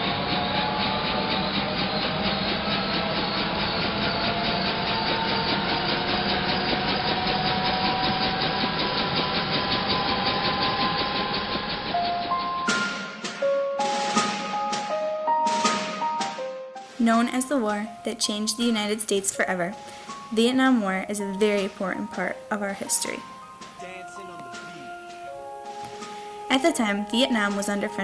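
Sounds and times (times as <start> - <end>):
turbine whine: 0.0 - 15.1
helicopter rotor beat: 0.0 - 16.1, 16.8 - 28.0.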